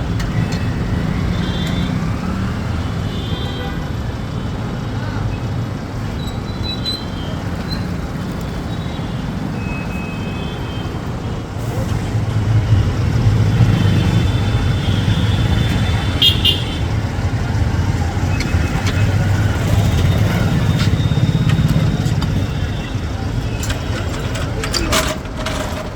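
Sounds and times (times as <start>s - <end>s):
vehicle engine rumble: 11.0s - 25.9s.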